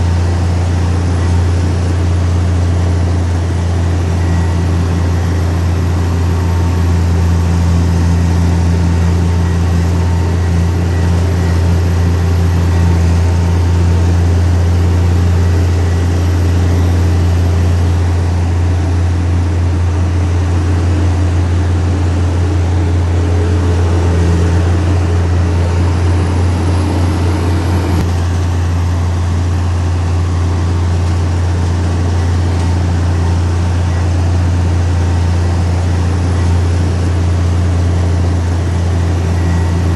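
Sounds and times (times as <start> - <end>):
heavy diesel engine drone: 0.0 - 39.9.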